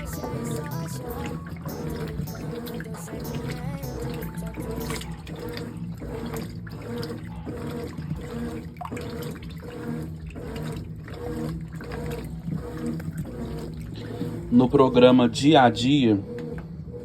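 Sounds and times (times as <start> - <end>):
washing machine agitator swishing: 0.0 - 17.0
wash water sloshing: 4.4 - 15.5.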